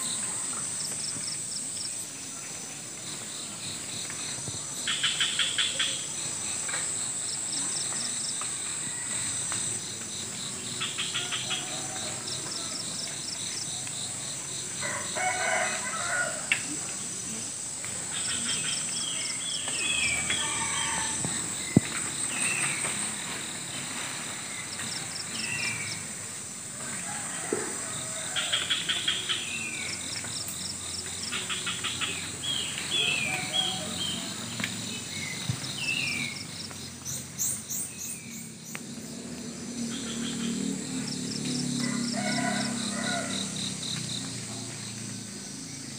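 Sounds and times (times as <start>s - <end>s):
insect whine: 0.0s - 45.9s
rooster crowing: 11.1s - 12.9s, 14.8s - 16.6s, 19.9s - 21.6s, 26.7s - 28.9s, 32.9s - 34.6s, 41.8s - 43.9s.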